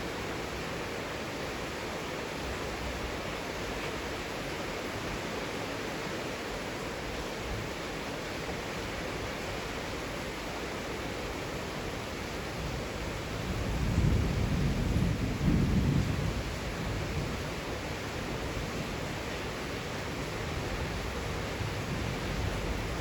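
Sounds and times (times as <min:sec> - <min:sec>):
heavy rain falling: 0:00.0 - 0:23.0
thunder rumbling: 0:13.2 - 0:18.9.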